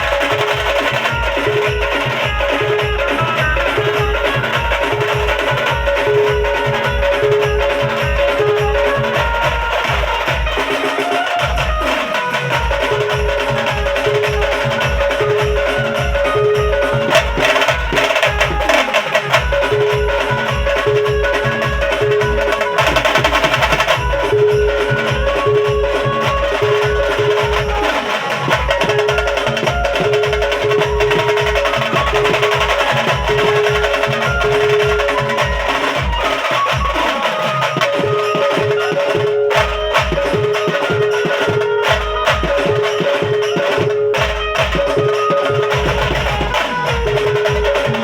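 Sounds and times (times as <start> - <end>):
heavy bass drum beat: 0.0 - 37.1
banjo party band music: 0.0 - 48.0.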